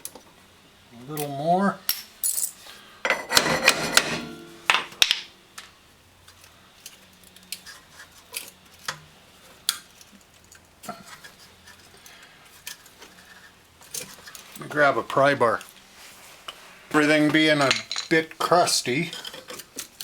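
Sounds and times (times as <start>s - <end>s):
metal tools clattering: 2.2s - 5.3s, 17.0s - 19.6s.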